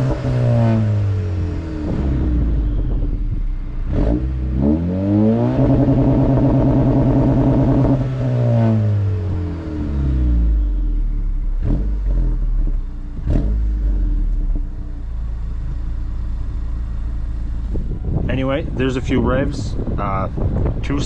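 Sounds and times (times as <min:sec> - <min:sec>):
engine on launch limiter stutter: 0:00.0 - 0:09.1
engine idling: 0:12.6 - 0:21.0.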